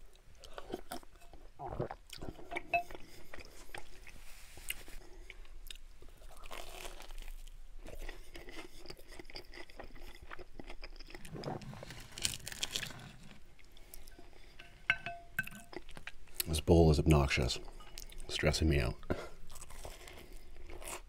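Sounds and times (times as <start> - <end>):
close chewing with crunchy clicks: 0.0 - 16.6, 19.1 - 21.0.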